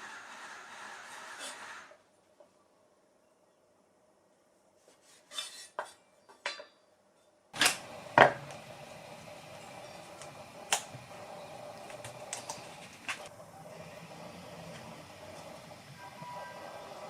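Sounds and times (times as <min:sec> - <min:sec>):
steady hum: 0:07.6 - 0:17.0.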